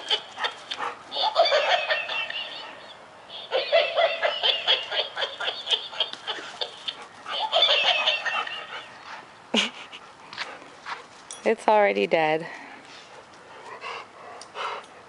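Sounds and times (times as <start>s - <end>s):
toy monkey giggling: 0.0s - 10.0s.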